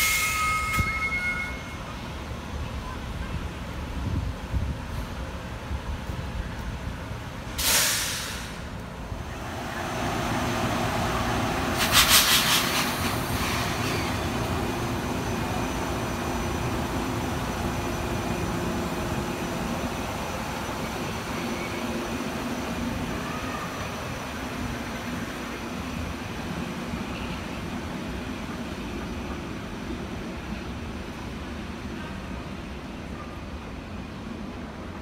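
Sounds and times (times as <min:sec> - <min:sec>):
loud air brake hiss: 0:00.0 - 0:00.6, 0:07.5 - 0:08.8, 0:11.7 - 0:14.2
train wheel noise: 0:00.0 - 0:35.0
fluttering hiss: 0:11.8 - 0:13.8.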